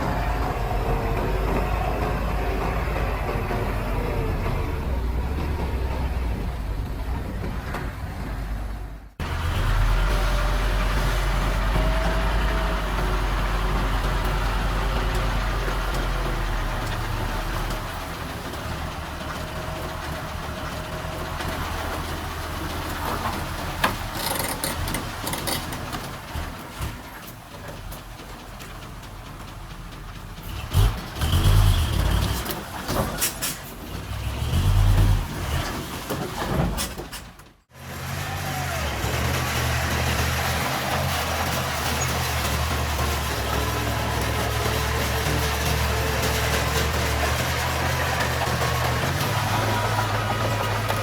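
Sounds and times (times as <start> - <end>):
heavy diesel machinery rumbling: 0.0 - 51.0.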